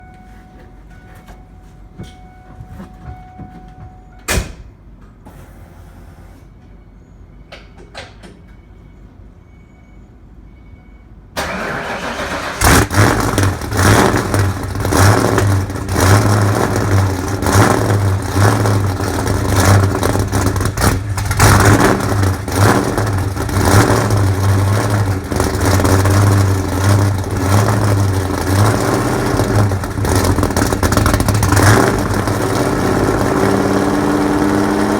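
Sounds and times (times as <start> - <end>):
engine starter cranking: 11.4 - 32.8
engine idling loudly: 12.0 - 34.9.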